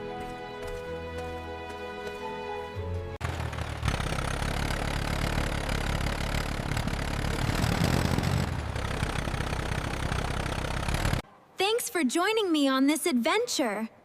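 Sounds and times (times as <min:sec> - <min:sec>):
tractor engine rumbling: 0:02.8 - 0:11.2.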